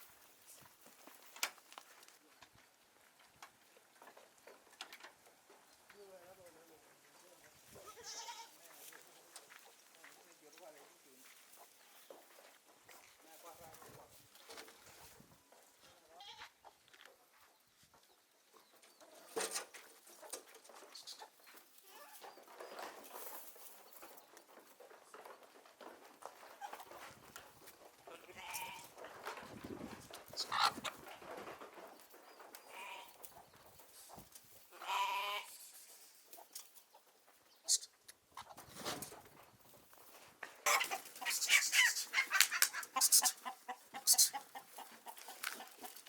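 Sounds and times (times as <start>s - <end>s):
goats bleating: 7.8s - 8.6s, 28.1s - 29.0s, 32.6s - 33.2s, 34.7s - 35.5s.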